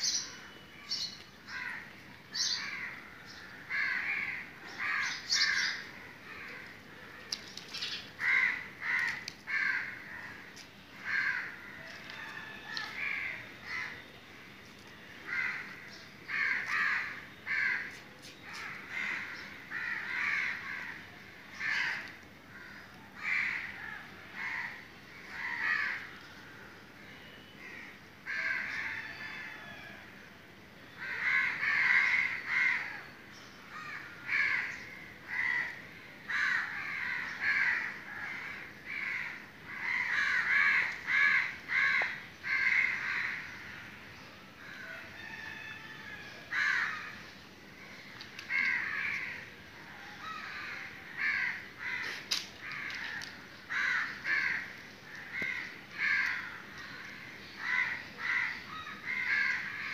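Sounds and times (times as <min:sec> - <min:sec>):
birds calling: 0:00.0 - 0:26.6, 0:46.4 - 0:59.9.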